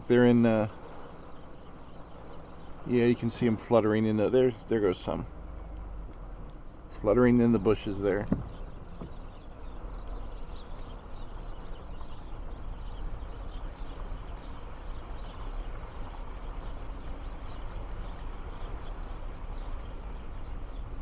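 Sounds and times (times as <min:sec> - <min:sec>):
small birds chirping: 0:00.0 - 0:21.0
wind rumble on microphone: 0:05.0 - 0:21.0.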